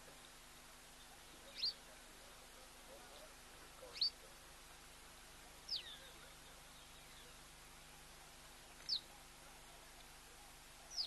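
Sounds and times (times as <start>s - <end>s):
bird chirping: 1.0s - 1.8s, 3.2s - 4.2s, 5.7s - 7.4s, 8.8s - 9.1s.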